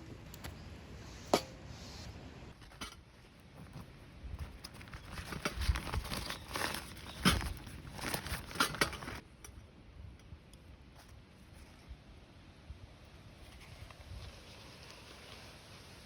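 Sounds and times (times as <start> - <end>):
rustling and crinkling: 2.5 - 9.5, 10.9 - 12.1.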